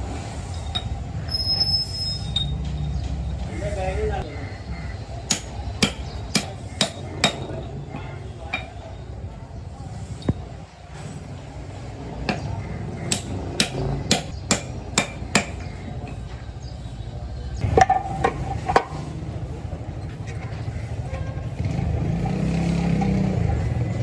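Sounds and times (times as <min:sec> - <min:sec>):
hammer striking metal: 0:05.3 - 0:07.6, 0:13.1 - 0:15.7.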